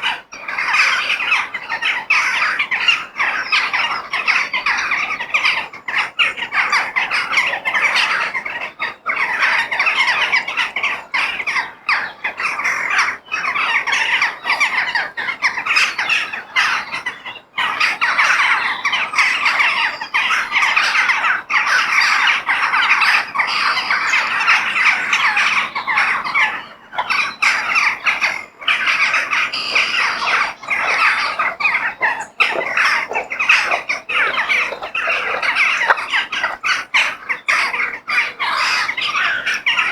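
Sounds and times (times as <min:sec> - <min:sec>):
crows cawing: 0:20.6 - 0:39.9.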